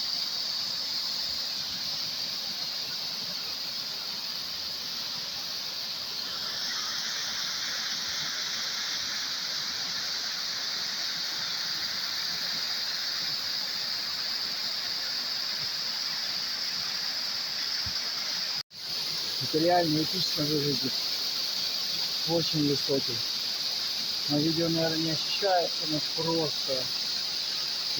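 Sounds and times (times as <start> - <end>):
waterfall rushing: 17.4 - 27.9.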